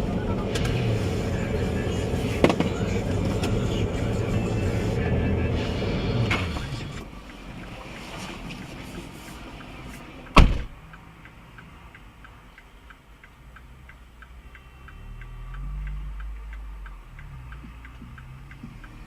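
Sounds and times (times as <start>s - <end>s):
low engine hum: 0.0s - 19.0s
turn signal relay ticking: 6.9s - 19.0s
sharp thump: 10.4s - 10.8s.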